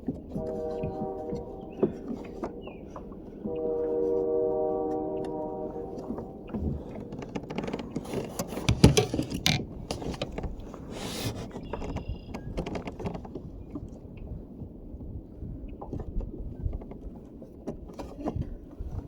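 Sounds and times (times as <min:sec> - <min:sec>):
gear knocking and scraping: 0:06.0 - 0:13.4.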